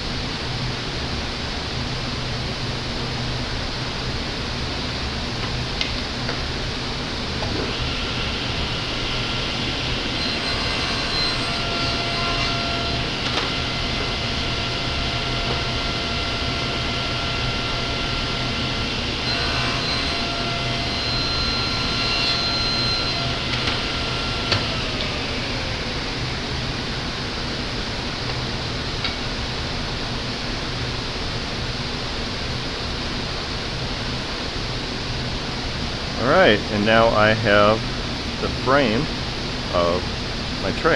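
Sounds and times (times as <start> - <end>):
table saw running: 6.4 - 29.4
saw cutting wooden boards: 7.5 - 27.0.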